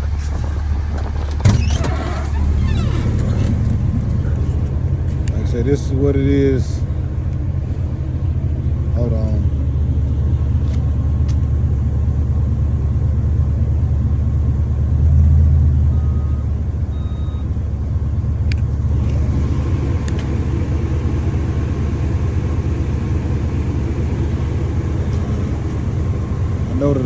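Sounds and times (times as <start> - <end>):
car air conditioning rumble: 0.0 - 27.0
short electronic beeps: 17.0 - 17.4.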